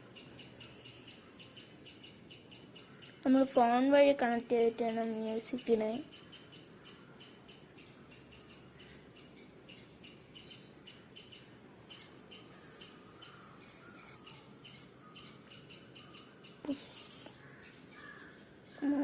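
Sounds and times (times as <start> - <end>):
bird chirping: 0.0 - 3.8, 4.5 - 19.0.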